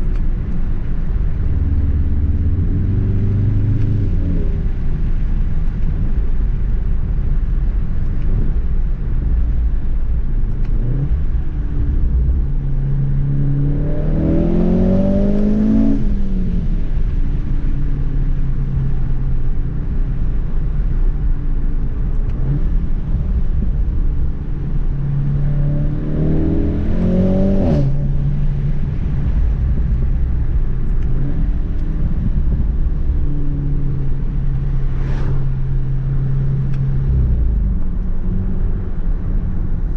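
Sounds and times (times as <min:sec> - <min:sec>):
road rumble: 0:00.0 - 0:39.9
car engine revving hard: 0:13.2 - 0:16.4, 0:25.2 - 0:28.2.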